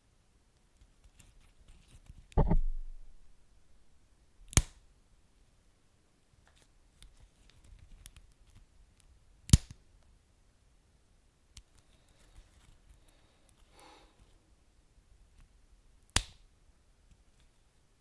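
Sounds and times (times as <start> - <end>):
loud sharp pops: 2.4 - 3.3
dull thump: 2.4 - 3.4.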